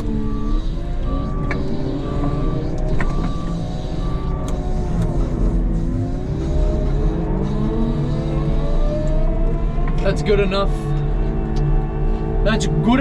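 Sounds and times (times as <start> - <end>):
reverse alarm beeping: 0.0 - 5.6
diesel engine revving under load: 0.0 - 13.0.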